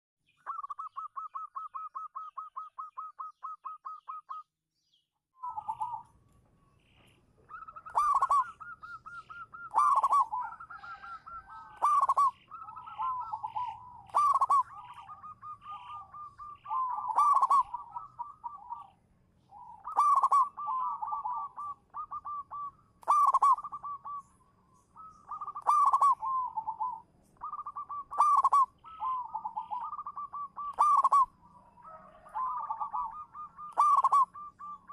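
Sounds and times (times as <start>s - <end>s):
doves cooing: 0.4s - 4.4s, 5.4s - 6.2s, 6.8s - 34.9s.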